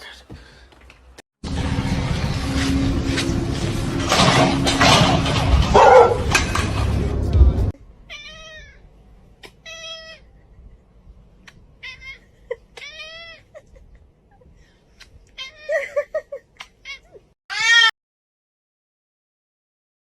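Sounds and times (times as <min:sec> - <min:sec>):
cat meowing: 0:08.1 - 0:08.8.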